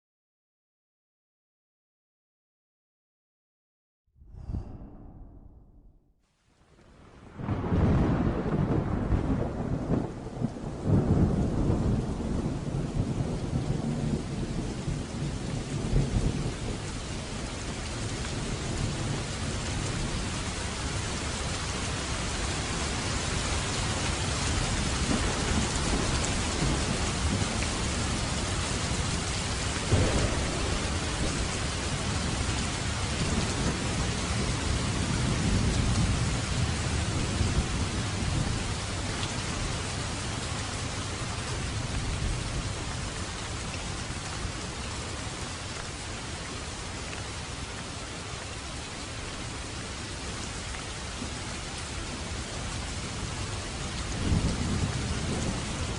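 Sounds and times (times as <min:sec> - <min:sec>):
low rolling thunder: 0:04.2 - 0:06.0, 0:07.2 - 0:39.1, 0:53.1 - 0:55.9
heavy rain: 0:06.5 - 0:55.9
sharp thunderclap: 0:07.3 - 0:14.7, 0:25.0 - 0:27.8, 0:29.8 - 0:38.6.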